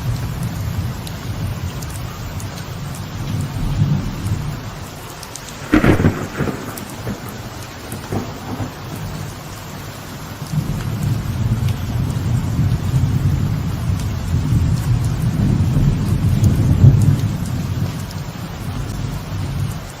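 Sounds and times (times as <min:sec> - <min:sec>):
low thunder rumbling: 0:00.0 - 0:19.9
light rain on a veranda: 0:00.0 - 0:20.0
loud thunder crack: 0:05.6 - 0:09.5.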